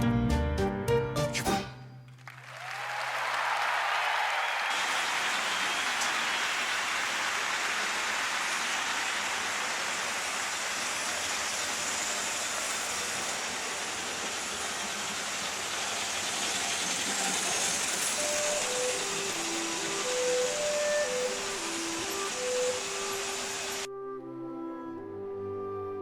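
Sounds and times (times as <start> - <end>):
model train rolling whirr: 4.7 - 23.9.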